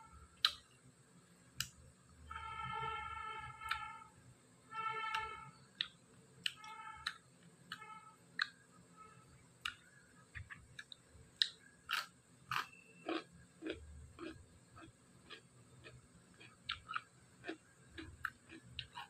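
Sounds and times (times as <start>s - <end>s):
cucumber crunching: 0.4s - 0.7s, 9.6s - 19.0s
wet chewing: 9.6s - 19.0s.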